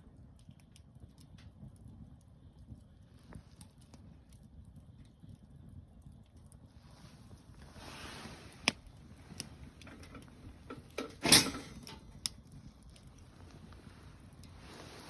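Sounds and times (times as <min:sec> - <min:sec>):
campfire crackling: 0:00.0 - 0:15.0
fire popping: 0:00.0 - 0:15.0
soft hiss: 0:13.2 - 0:15.0.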